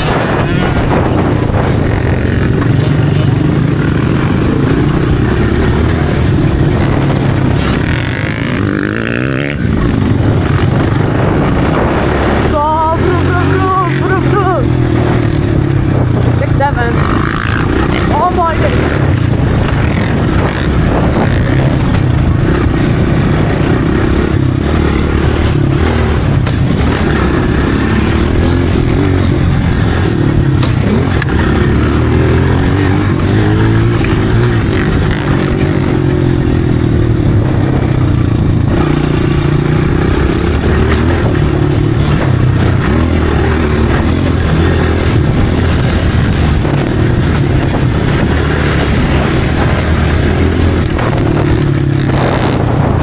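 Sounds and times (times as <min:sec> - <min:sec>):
dirt bike engine revving: 0:00.0 - 0:53.0
clicks and rattles: 0:25.4 - 0:27.4.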